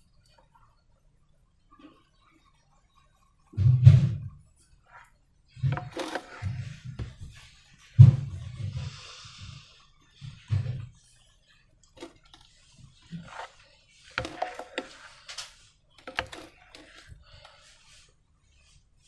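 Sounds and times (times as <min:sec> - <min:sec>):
slime squelching: 0:11.9 - 0:18.0.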